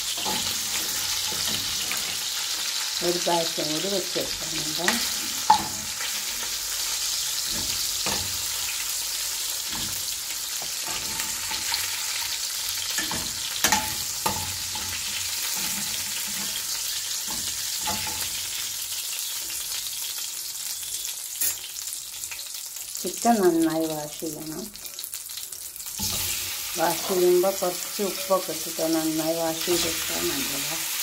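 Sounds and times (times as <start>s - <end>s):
chicken sizzling in hot oil: 0.0s - 31.0s.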